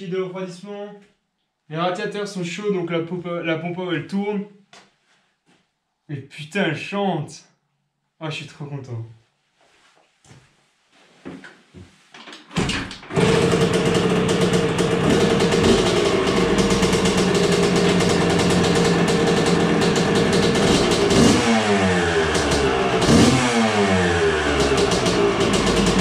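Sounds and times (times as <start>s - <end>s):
two-stroke engine kick-started: 12.6s - 26.0s
engine revs blipped: 13.2s - 26.0s.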